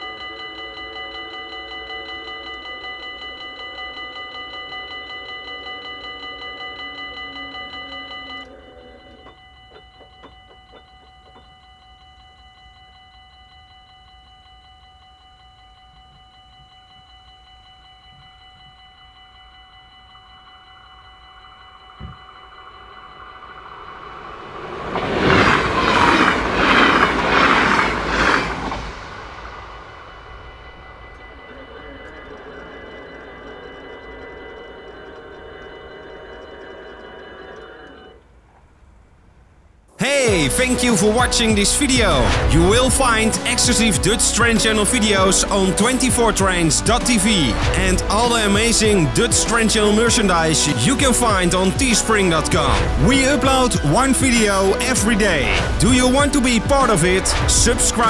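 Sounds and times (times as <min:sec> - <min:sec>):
level crossing bells ringing: 0:00.0 - 0:38.2, 0:40.0 - 0:58.0
train wheel clatter: 0:22.0 - 0:38.1.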